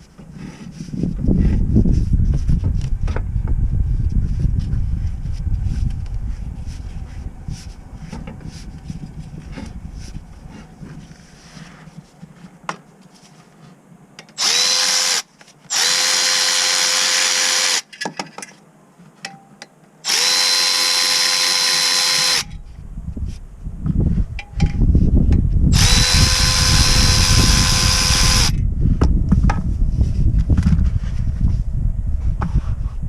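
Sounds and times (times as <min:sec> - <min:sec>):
cordless power tool spinning: 0:14.4 - 0:17.8, 0:20.0 - 0:22.5, 0:25.7 - 0:28.6.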